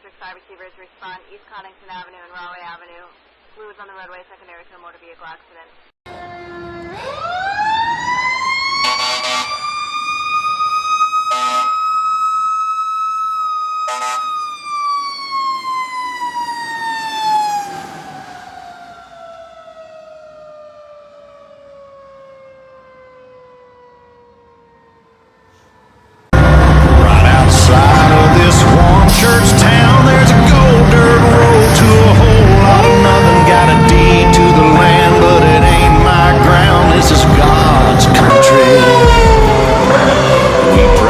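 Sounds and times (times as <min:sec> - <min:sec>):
mechanical siren wailing: 0:06.1 - 0:41.0
horn blasts: 0:08.8 - 0:09.6, 0:11.3 - 0:11.8, 0:13.9 - 0:14.3, 0:26.4 - 0:41.0.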